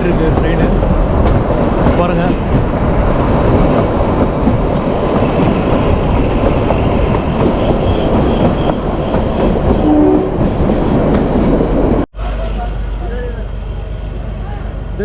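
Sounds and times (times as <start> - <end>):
train wheels rumbling on rail: 0.0 - 15.0
high-pitched wheel squeal: 7.6 - 12.0.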